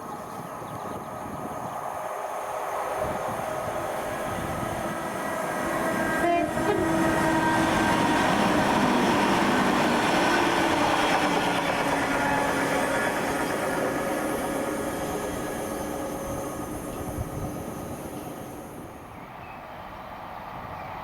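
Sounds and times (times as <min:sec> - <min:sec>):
train running past: 0:00.0 - 0:21.0
train horn blast: 0:05.7 - 0:09.1, 0:11.7 - 0:13.8.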